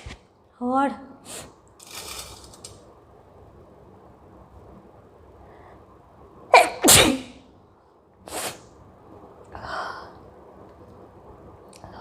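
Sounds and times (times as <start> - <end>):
woman sneezing: 6.5 - 7.4.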